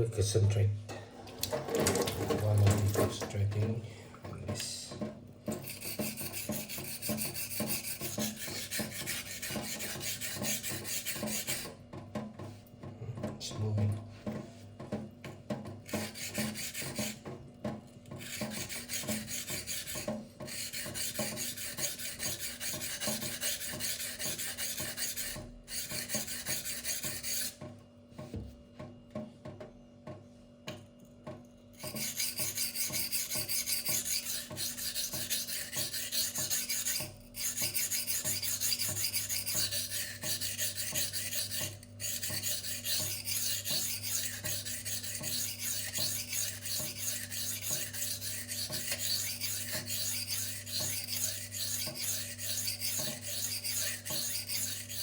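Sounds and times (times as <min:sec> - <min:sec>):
knife scraping on whetstone: 0:05.5 - 0:11.8, 0:15.9 - 0:17.2, 0:18.2 - 0:27.6, 0:31.8 - 0:55.0.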